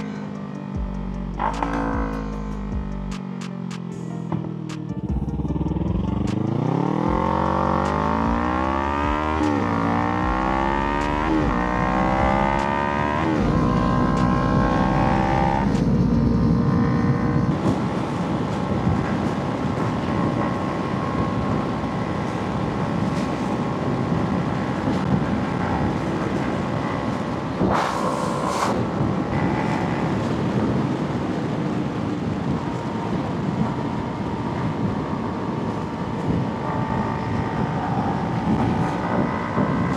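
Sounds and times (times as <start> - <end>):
motorcycle engine accelerating: 0.0 - 39.9
wind rush: 8.1 - 39.9.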